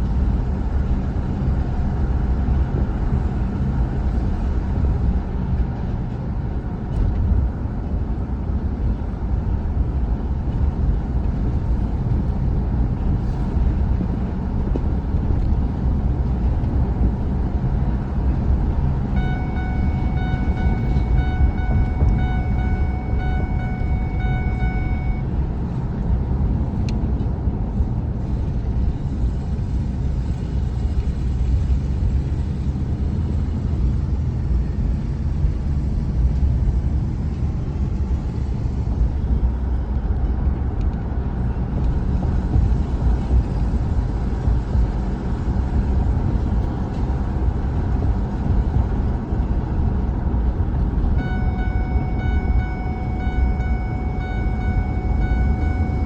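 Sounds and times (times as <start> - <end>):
truck engine and road rumble: 0.0 - 56.0
high-pitched whine: 18.3 - 25.8, 50.8 - 56.0.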